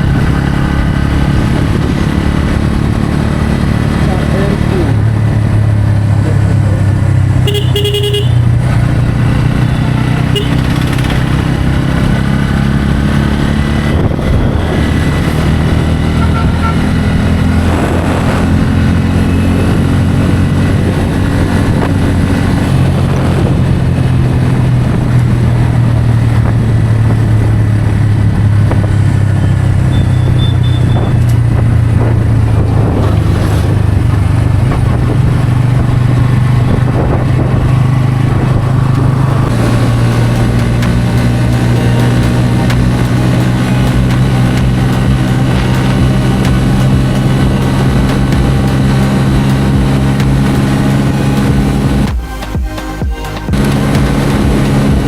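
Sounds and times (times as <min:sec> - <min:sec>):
motorcycle engine running: 0:00.0 - 0:55.0
vehicle horn honking: 0:07.4 - 0:08.6, 0:10.2 - 0:10.8, 0:16.1 - 0:17.0, 0:29.4 - 0:31.2.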